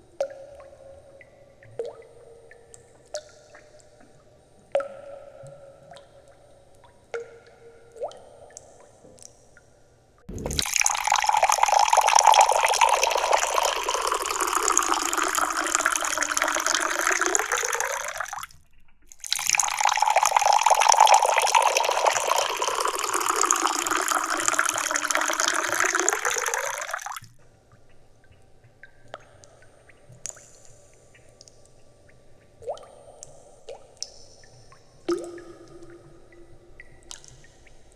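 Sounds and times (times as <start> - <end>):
faint drips: 10.3 - 37.9
tea pouring into pitcher: 10.4 - 18.5, 19.2 - 27.2.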